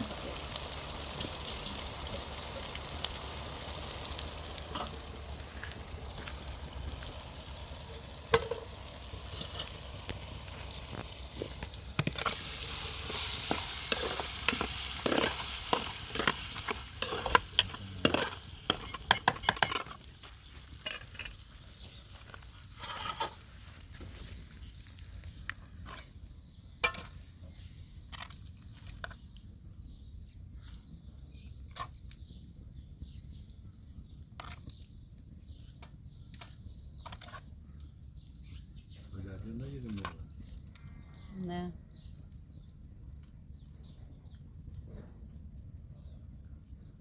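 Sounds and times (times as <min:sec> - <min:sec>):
food sizzling in a pan: 0:00.0 - 0:24.6
utensil stirring and scraping: 0:08.3 - 0:20.1.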